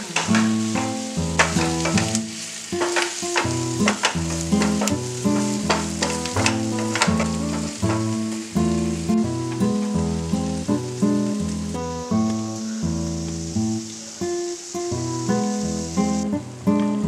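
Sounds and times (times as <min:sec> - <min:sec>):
wooden spatula scraping pan: 0:00.0 - 0:08.3
potatoes sizzling in frying pan: 0:00.0 - 0:17.0
spatula clicking against pan: 0:02.8 - 0:08.2.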